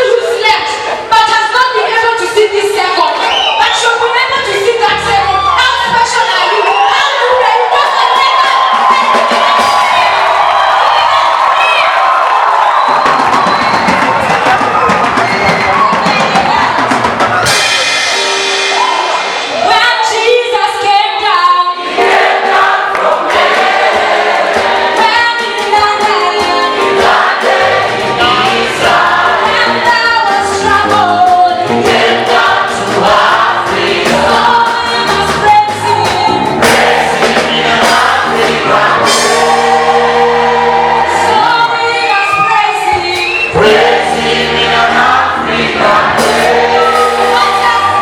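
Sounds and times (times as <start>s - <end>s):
choir singing gospel: 21.1s - 48.0s.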